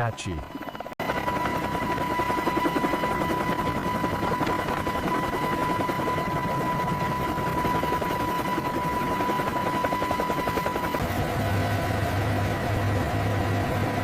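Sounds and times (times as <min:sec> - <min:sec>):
helicopter rotor chop: 0:00.0 - 0:14.0.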